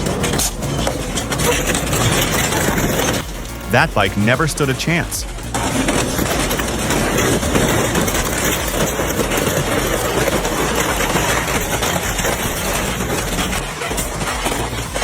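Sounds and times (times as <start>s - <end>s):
industrial shredder grinding: 5.4s - 15.0s.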